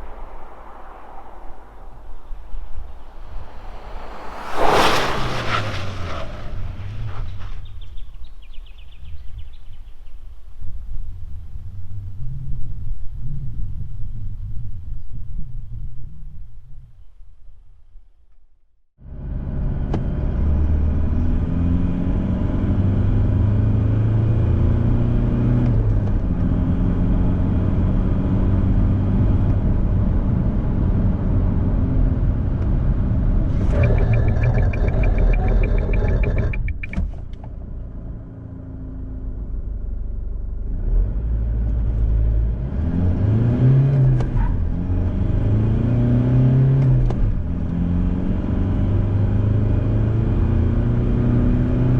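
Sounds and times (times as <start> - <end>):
diesel engine accelerating: 30.7 - 51.9
engine revving in short blips: 33.5 - 37.5
fast even ticking: 33.6 - 37.0.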